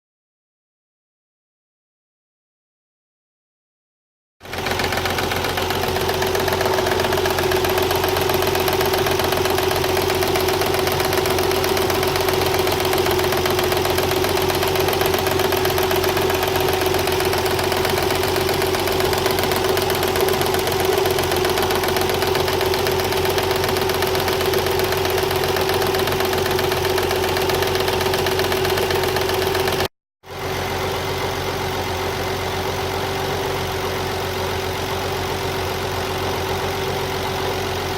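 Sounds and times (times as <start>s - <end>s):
car engine idling with whine and knock: 4.4s - 37.9s.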